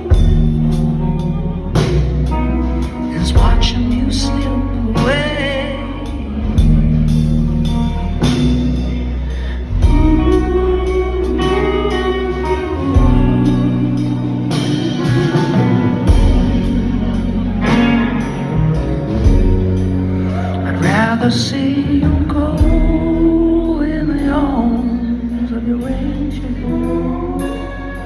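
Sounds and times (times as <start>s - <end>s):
drum kit: 0.0s - 28.0s
electric guitar: 0.0s - 28.0s
sustained bass notes: 0.0s - 28.0s.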